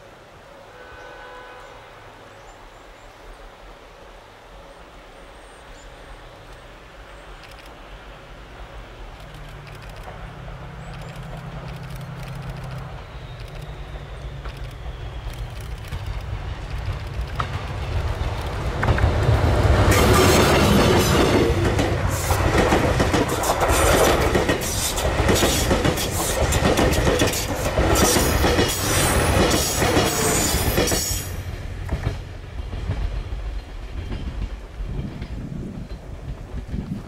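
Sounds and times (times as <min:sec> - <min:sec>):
diesel locomotive engine rumble: 0:06.5 - 0:37.0
train wheels clattering over rails: 0:09.3 - 0:37.0.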